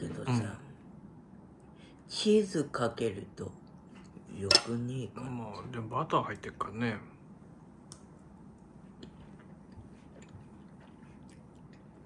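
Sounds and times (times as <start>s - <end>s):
faint chewing: 7.9s - 12.0s.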